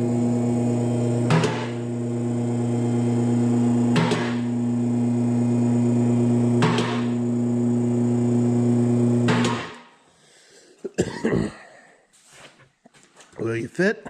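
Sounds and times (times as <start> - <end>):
electric motor humming: 0.0 - 9.8.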